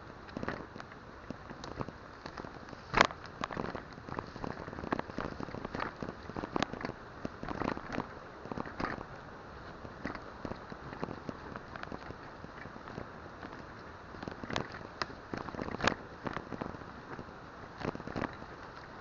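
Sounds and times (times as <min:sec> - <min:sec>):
bike tyres rolling on gravel: 0:00.0 - 0:19.0.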